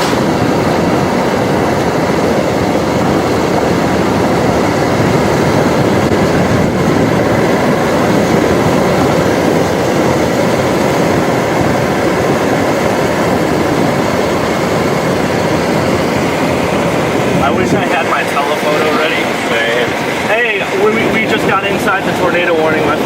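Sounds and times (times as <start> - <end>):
road and tyre noise inside car: 6.1 - 7.7.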